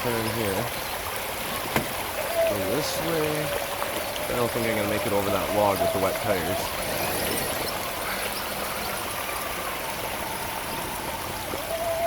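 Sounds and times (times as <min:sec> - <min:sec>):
small waterfall rushing: 0:00.0 - 0:12.0
electric motor whining: 0:06.6 - 0:11.6.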